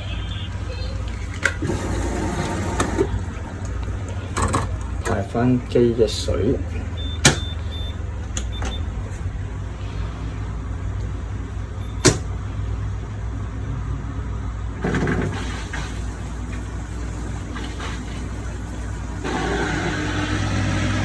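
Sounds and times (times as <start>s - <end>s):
drain pump humming: 1.3s - 5.8s, 14.8s - 21.0s.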